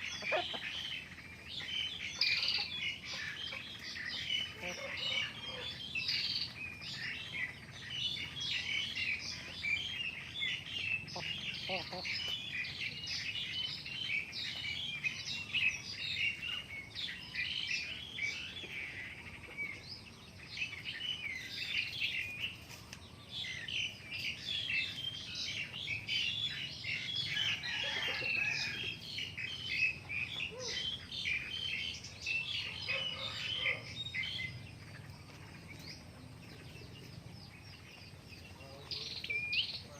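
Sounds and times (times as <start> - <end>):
flock of birds chirping: 0.0 - 39.9.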